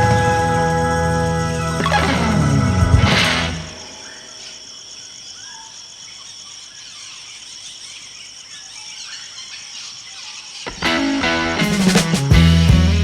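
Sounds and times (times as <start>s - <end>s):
high-pitched insect chorus: 0.0s - 10.8s
faint bird chirps: 1.7s - 10.8s.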